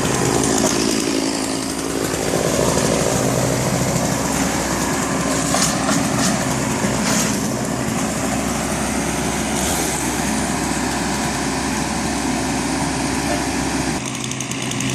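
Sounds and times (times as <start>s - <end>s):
small petrol engine running: 0.0s - 14.9s.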